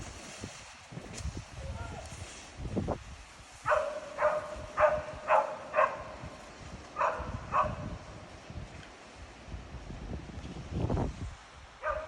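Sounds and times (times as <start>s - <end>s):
dog barking: 3.7s - 6.1s, 7.0s - 7.8s.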